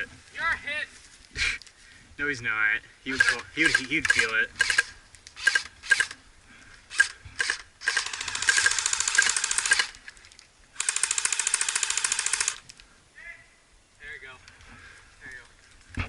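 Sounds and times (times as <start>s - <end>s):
airsoft gun automatic bursts: 3.1s - 6.2s, 6.9s - 10.0s, 10.8s - 12.6s.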